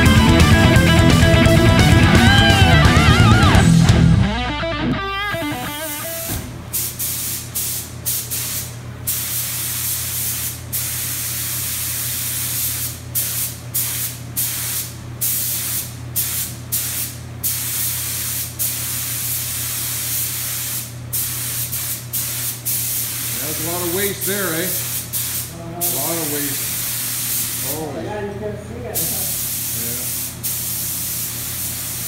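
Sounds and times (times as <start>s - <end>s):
spray gun hissing: 5.6s - 27.9s, 29.0s - 32.0s.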